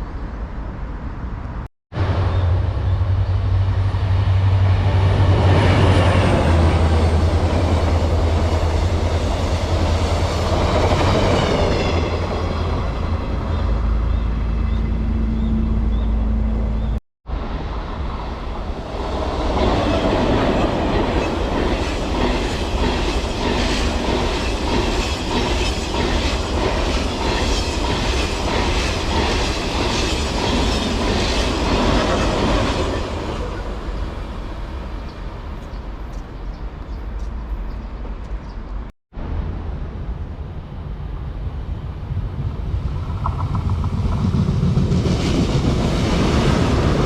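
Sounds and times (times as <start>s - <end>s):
steady low rumble: 33.8s - 47.0s.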